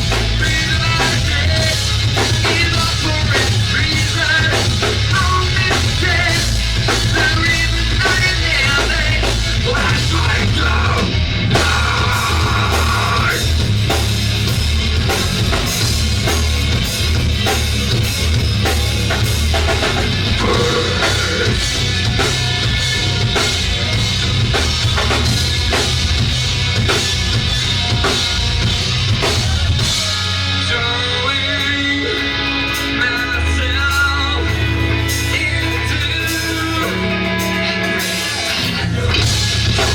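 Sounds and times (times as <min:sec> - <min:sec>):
bass and guitar: 0:00.0 - 0:39.9
drum kit beat: 0:00.0 - 0:39.9.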